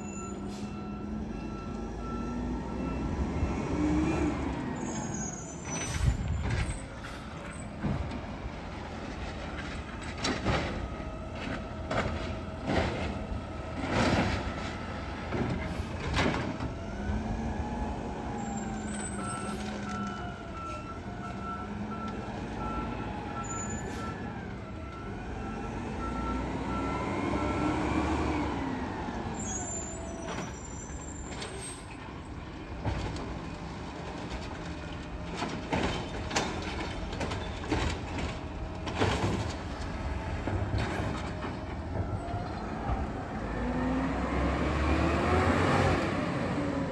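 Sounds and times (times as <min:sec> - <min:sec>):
garbage truck engine revving: 0:39.6 - 0:46.9.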